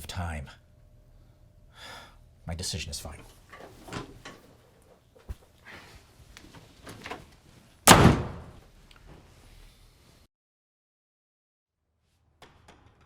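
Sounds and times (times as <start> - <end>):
door slamming shut: 7.9 - 8.6.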